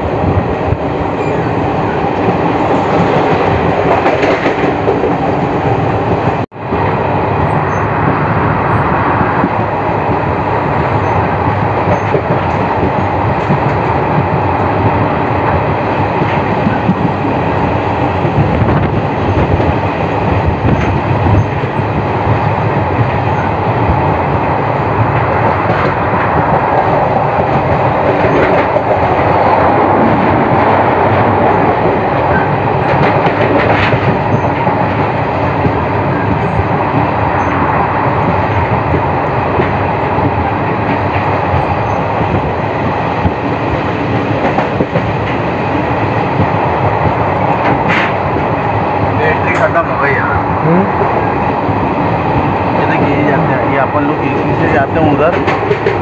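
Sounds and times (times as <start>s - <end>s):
train wheels rumbling on rails: 0.0s - 56.0s
sharp rail clacks: 2.1s - 5.3s, 25.0s - 45.5s, 46.2s - 48.5s, 49.3s - 50.0s, 54.0s - 56.0s.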